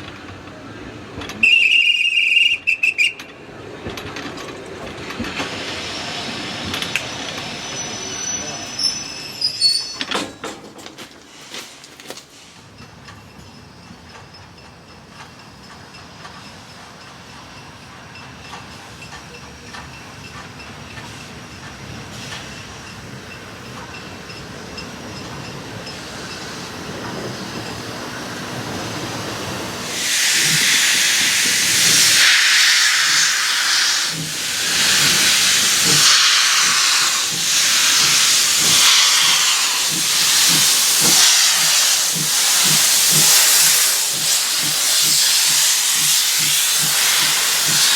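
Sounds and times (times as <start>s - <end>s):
steam hiss: 5.2s - 10.0s, 21.1s - 47.9s
steam locomotive exhaust chuffs: 15.0s - 47.9s.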